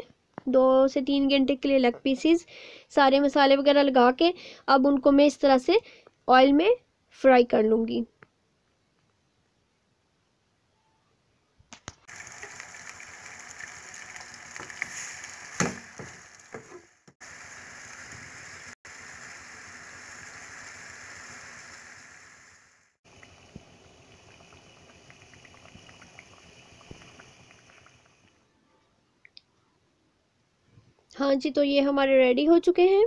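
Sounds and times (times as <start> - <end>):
chicken sizzling in hot oil: 12.1 - 28.3.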